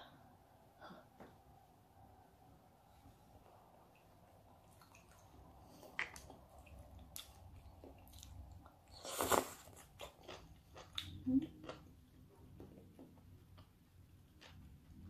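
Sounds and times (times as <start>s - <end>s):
person chewing food: 3.8s - 15.0s.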